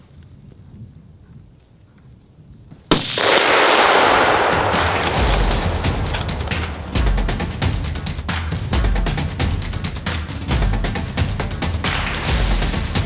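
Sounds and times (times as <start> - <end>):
rifle shot: 2.9 - 7.5
loud music: 3.8 - 13.0.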